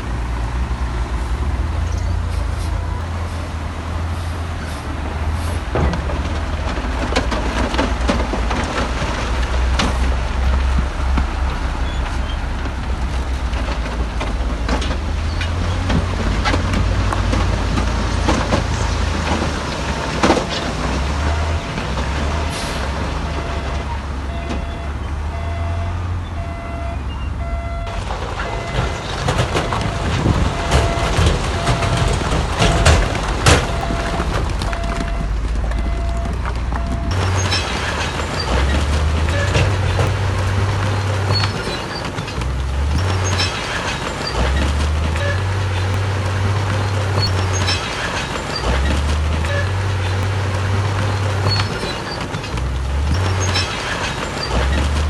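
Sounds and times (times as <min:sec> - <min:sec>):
heavy diesel engine rumble: 0:00.0 - 0:55.0
clanks of rock and steel: 0:05.6 - 0:23.9, 0:27.9 - 0:55.0
reversing alarm beeping: 0:21.2 - 0:38.6.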